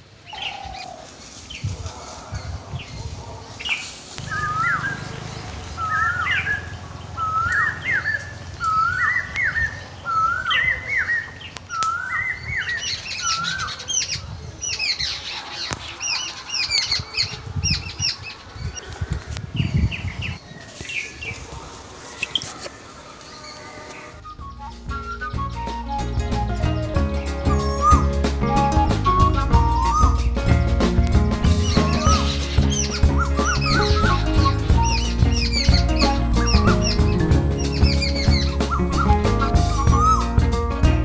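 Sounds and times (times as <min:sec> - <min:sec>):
high-pitched bird chirps: 0:04.2 - 0:05.1, 0:05.7 - 0:15.2, 0:23.3 - 0:30.4, 0:31.6 - 0:40.4.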